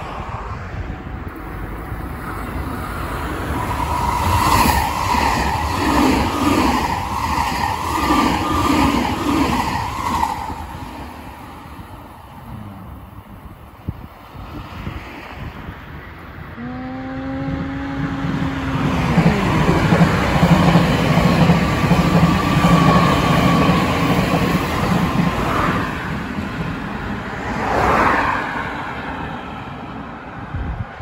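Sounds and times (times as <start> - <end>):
train wheels rumbling over rails: 1.3 - 13.9, 17.0 - 29.5
train horn blast: 16.6 - 19.7
car passing by: 25.1 - 31.0.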